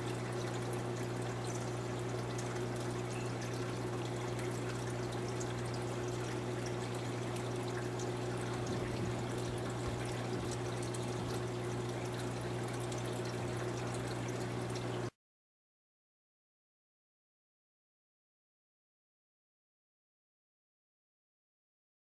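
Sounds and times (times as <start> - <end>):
steady hum with hiss: 0.0 - 15.1.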